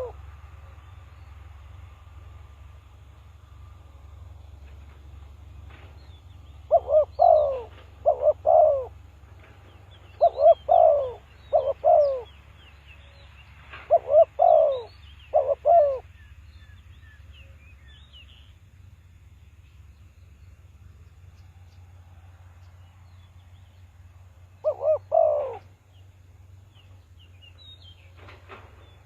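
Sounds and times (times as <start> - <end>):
dove cooing: 0.0 - 0.2, 6.6 - 12.4, 13.8 - 16.1, 24.5 - 25.7
low steady hum: 0.0 - 29.0
small birds chirping: 4.4 - 22.0, 22.6 - 29.0.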